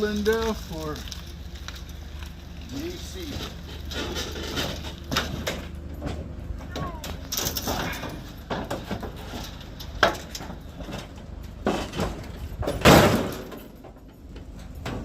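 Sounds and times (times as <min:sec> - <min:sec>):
low steady hum: 0:00.0 - 0:15.0
vehicle door slamming shut: 0:12.7 - 0:13.5.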